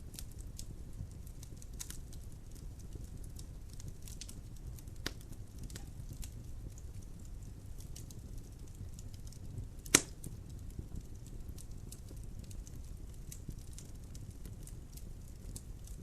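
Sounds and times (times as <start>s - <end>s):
low fire rumble: 0.0s - 16.0s
wood fire crackling: 0.0s - 16.0s
log popping: 9.8s - 10.2s.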